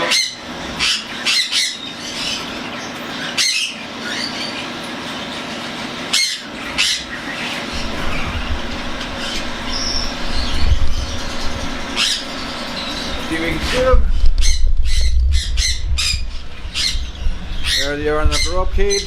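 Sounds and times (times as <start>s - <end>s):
bird chick squawks: 6.1s - 19.0s
bird chick raspy begging call: 7.7s - 19.0s.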